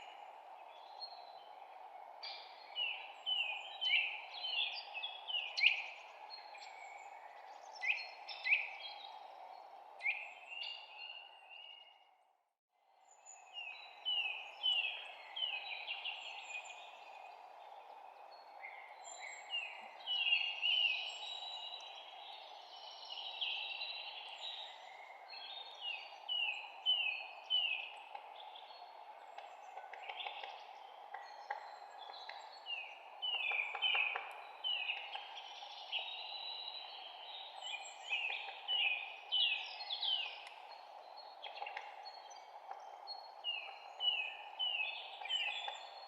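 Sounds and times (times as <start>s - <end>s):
songbirds chirping and singing: 13.1s - 46.0s.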